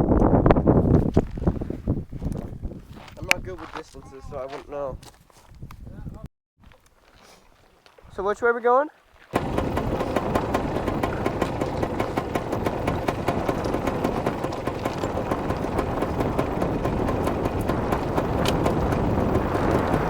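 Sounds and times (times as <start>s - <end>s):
wind on microphone: 0.0s - 6.3s, 9.4s - 20.0s
dirt bike engine: 9.4s - 20.0s
sharp clicks and rattles: 9.4s - 20.0s.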